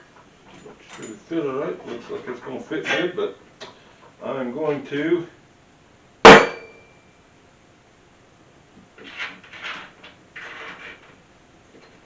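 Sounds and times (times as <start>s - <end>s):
short metallic ring: 6.3s - 7.1s.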